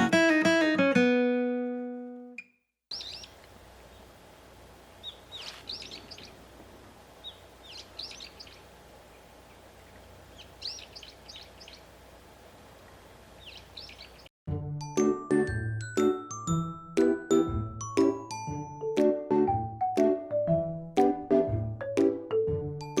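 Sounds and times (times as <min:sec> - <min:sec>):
songbird chirping: 0:02.4 - 0:14.3
low outdoor background rumble: 0:02.9 - 0:14.3.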